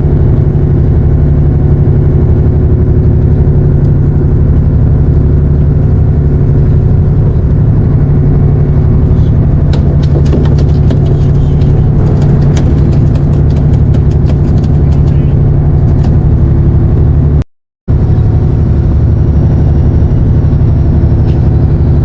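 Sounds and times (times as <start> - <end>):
boat engine droning: 0.0 - 22.0
sharp clicks and taps: 9.7 - 15.3.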